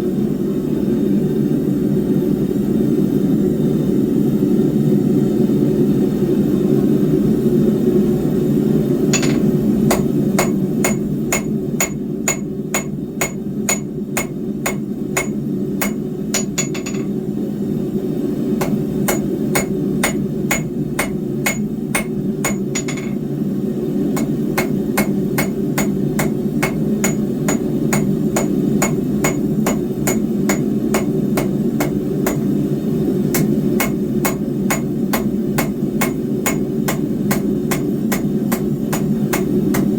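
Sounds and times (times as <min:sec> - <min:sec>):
hammer striking steel on anvil: 0:09.2 - 0:17.2, 0:18.6 - 0:23.2, 0:24.2 - 0:32.5, 0:33.3 - 0:39.9.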